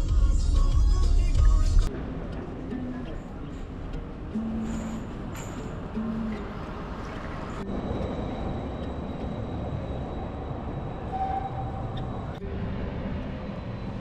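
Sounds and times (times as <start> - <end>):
faint high whine: 7.6 - 14.0.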